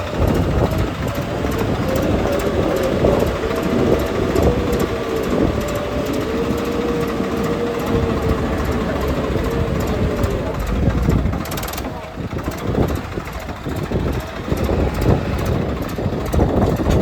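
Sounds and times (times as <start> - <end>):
wavering whine: 0.0 - 12.0
heavy diesel engine running: 0.0 - 17.0.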